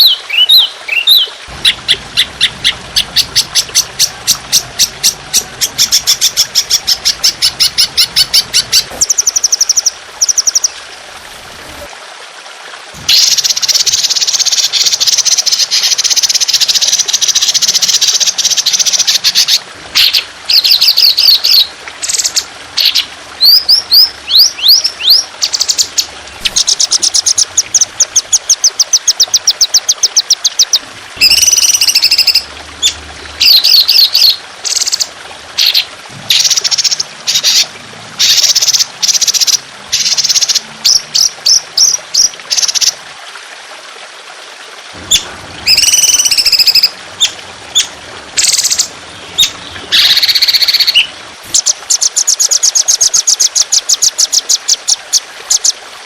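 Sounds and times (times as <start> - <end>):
songbird singing rapid trills: 0.0 - 10.7, 13.1 - 37.6
water trickling: 0.0 - 56.0.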